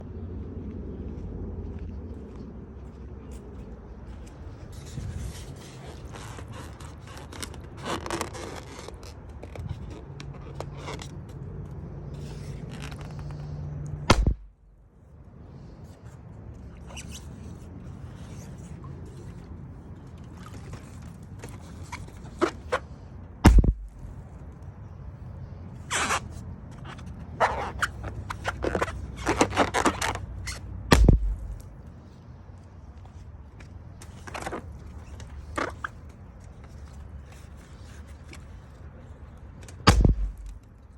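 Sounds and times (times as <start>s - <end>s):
balloon scraping and rubbing: 4.7s - 11.1s, 25.8s - 31.7s, 39.9s - 40.7s
steady low hum: 11.2s - 21.4s, 22.2s - 26.6s, 30.0s - 33.8s, 39.1s - 40.9s
balloon popping: 14.1s - 14.5s, 23.4s - 24.0s, 30.9s - 31.6s, 39.9s - 40.6s.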